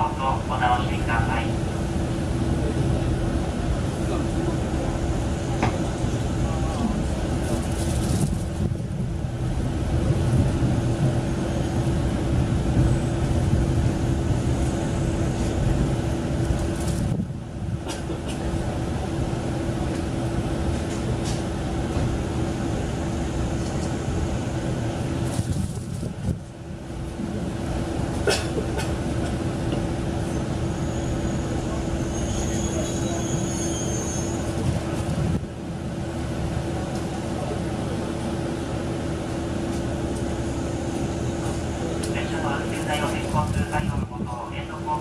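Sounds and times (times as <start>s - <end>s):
diesel railcar engine droning: 0.0s - 45.0s.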